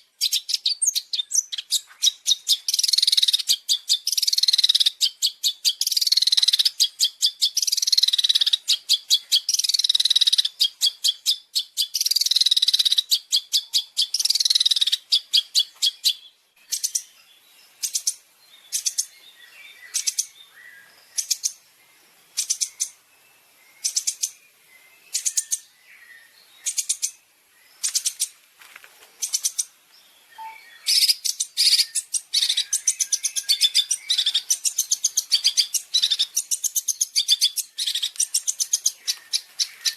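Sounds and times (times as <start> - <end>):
songbird chattering calls: 0.0 - 23.1, 23.7 - 28.4, 29.2 - 39.9.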